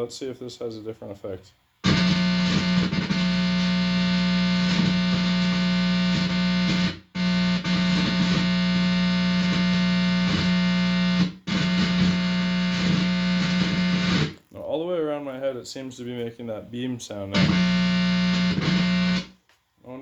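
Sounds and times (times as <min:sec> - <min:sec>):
guitar amplifier buzzing: 0:01.8 - 0:14.4, 0:17.4 - 0:19.4.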